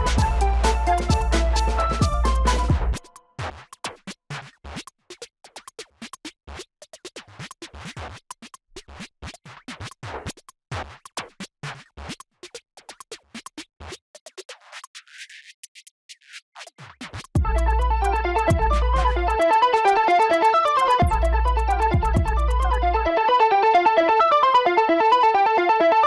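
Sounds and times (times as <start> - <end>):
music cutting in and out: 0.0 - 3.3, 17.1 - 26.0
subwoofer crackling and popping: 17.4 - 19.4, 21.0 - 23.0.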